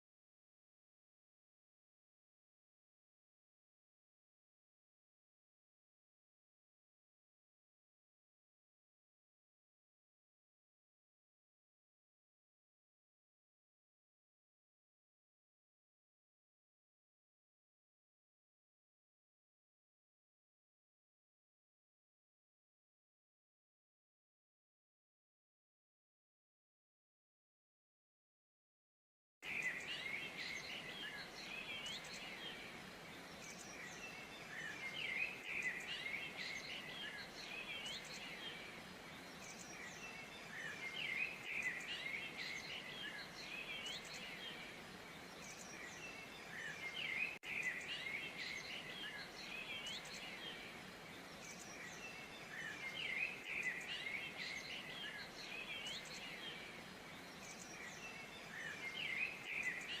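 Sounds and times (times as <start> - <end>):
small birds chirping chorus: 29.4 - 60.0.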